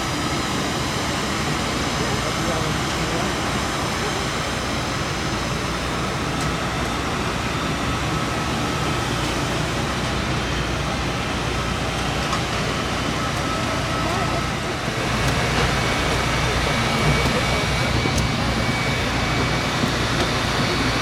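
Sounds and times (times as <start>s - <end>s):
aircraft and equipment rumble: 0.0s - 21.0s.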